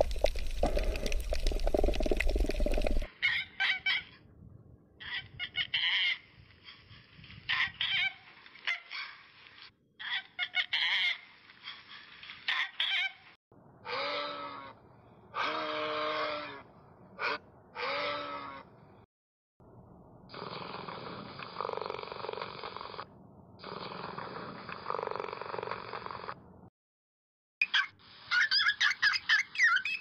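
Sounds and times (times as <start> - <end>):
longer low pitched animal calls: 13.8 - 18.8
squeaky chattering animal calls: 17.2 - 18.7.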